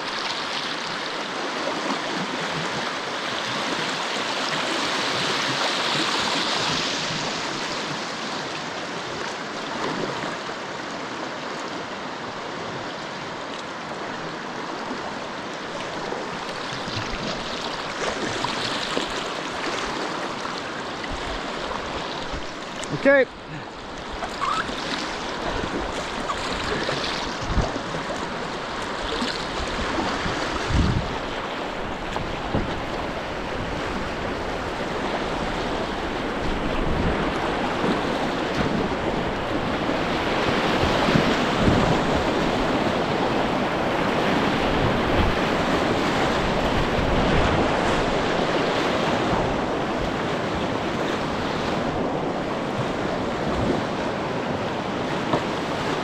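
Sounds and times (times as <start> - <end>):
river water over rapids: 0.0 - 56.0
wind buffeting microphone: 25.4 - 55.7.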